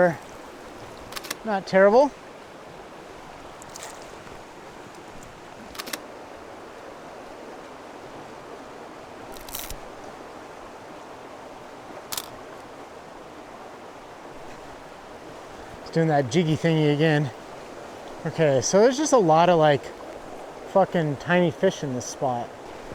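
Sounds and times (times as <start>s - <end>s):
river flowing: 0.0s - 22.9s
sharp clicks: 1.1s - 1.4s, 5.7s - 6.0s.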